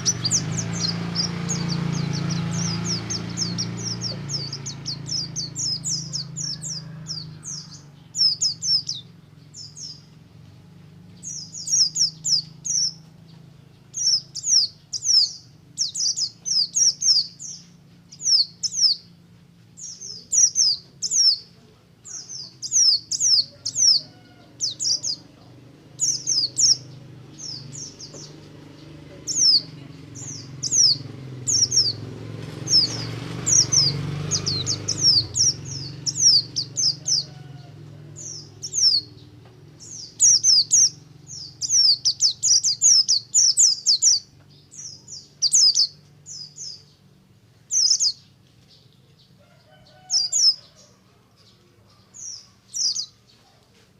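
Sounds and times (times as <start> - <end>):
bird singing high chirps: 0.0 - 10.2, 11.1 - 49.0, 49.7 - 53.5.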